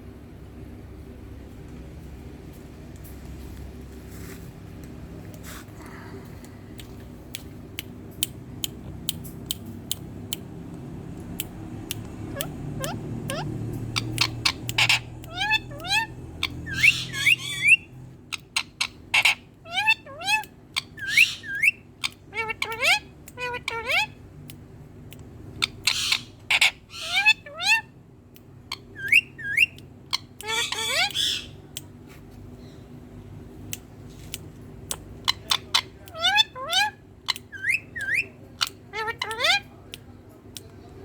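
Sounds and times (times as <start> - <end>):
parrot chirping: 8.6 - 24.2, 25.4 - 27.9, 28.7 - 31.6, 34.9 - 39.8
parakeet rising calls: 11.5 - 18.0, 28.7 - 31.6
parrot squawking: 12.2 - 24.2, 25.6 - 27.9, 28.7 - 31.6, 35.0 - 39.7.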